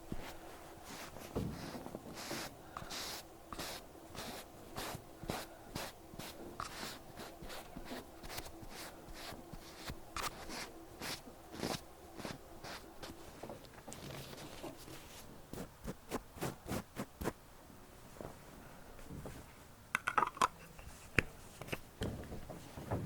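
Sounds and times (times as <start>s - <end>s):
cotton pad rubbing over ear: 0.1s - 13.2s.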